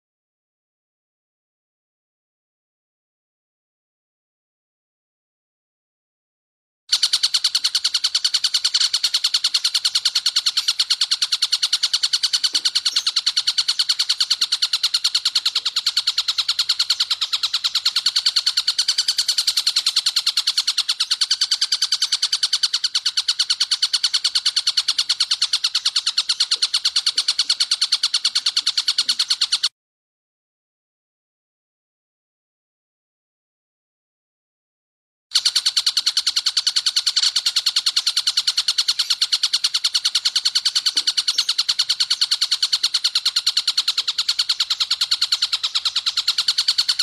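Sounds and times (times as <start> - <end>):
kingfisher rattling call: 6.9 - 29.7, 35.3 - 47.0.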